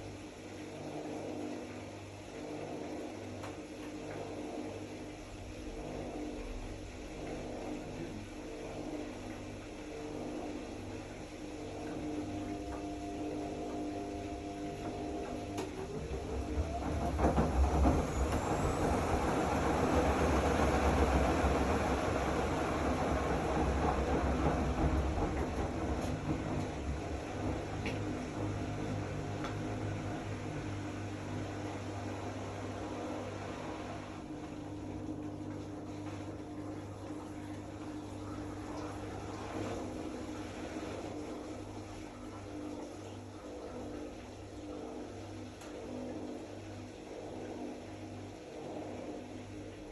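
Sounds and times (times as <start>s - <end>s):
washing machine humming: 0.0s - 49.9s
short rising whine: 11.6s - 22.2s.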